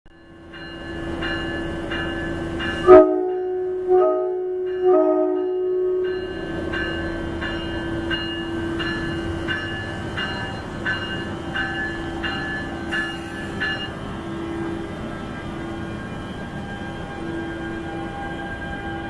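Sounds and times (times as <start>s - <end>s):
locomotive bell ringing: 0.1s - 19.0s
passing train rumble: 0.2s - 19.0s
locomotive horn blast: 2.8s - 6.1s.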